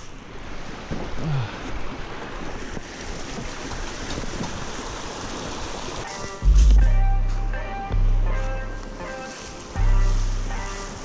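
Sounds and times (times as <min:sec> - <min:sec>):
mountain stream rushing: 0:00.0 - 0:11.0
music with heavy bass beat: 0:06.2 - 0:09.0, 0:09.8 - 0:11.0.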